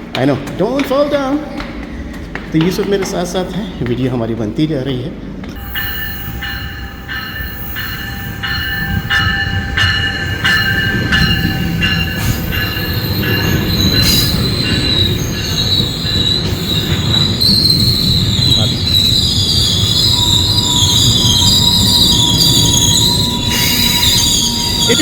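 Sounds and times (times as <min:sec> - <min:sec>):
train rumble: 0:00.0 - 0:25.0
high wheel squeal: 0:05.6 - 0:25.0.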